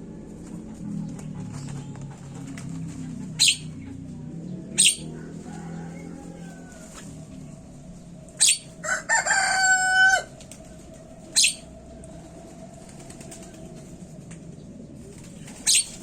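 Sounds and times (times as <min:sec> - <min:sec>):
bird harsh calls: 0:01.1 - 0:07.0, 0:08.4 - 0:10.3, 0:11.3 - 0:11.7, 0:15.4 - 0:16.0
bird drawn-out crowing call: 0:04.8 - 0:07.4, 0:08.4 - 0:10.4.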